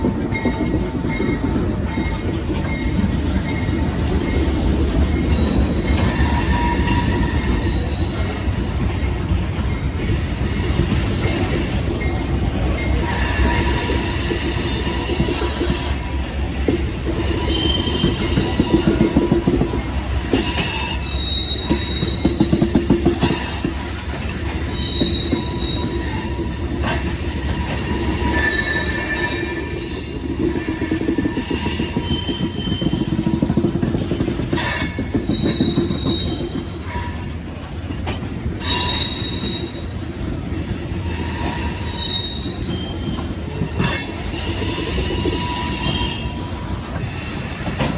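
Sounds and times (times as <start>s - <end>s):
train wheels clattering over rails: 0.0s - 47.9s
wheel squeals: 0.3s - 8.9s, 17.0s - 37.4s, 38.6s - 47.9s.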